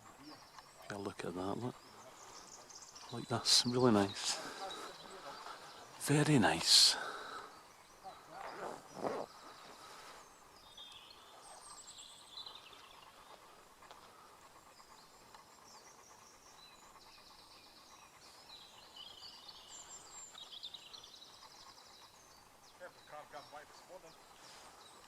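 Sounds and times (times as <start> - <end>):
faint birdsong with chirps and trills: 0.0 - 25.0.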